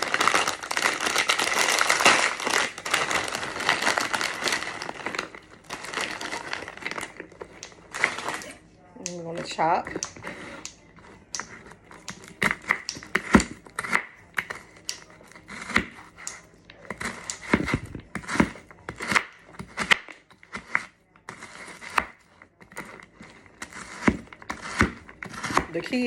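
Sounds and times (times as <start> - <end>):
knife chopping frozen vegetables: 0.0 - 26.0.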